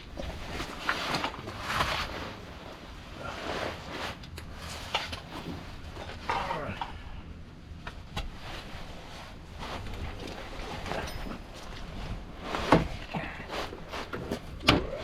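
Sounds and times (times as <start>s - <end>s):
metal tools clinking: 10.2s - 11.9s.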